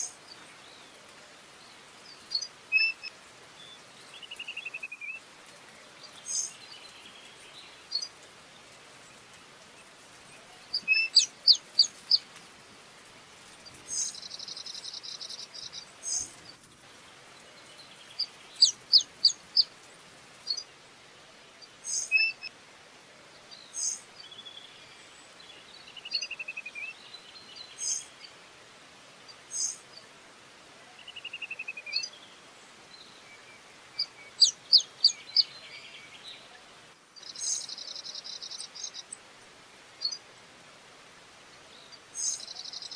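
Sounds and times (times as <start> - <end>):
birds calling: 10.6 - 12.4, 17.9 - 19.8, 33.6 - 36.5.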